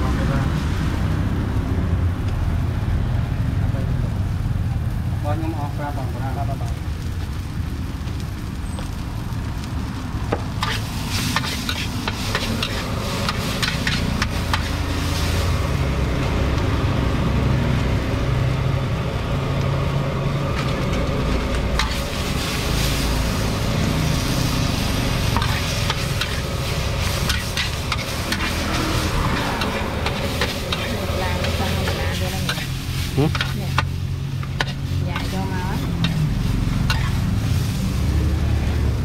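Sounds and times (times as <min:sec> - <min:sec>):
food sizzling in hot oil: 0:00.0 - 0:39.0
low rumble: 0:12.8 - 0:33.2.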